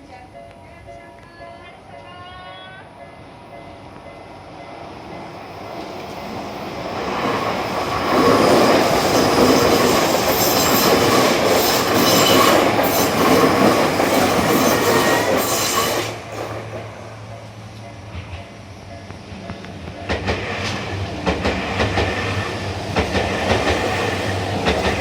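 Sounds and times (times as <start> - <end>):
train wheels clattering over rail joints: 19.4 - 25.0.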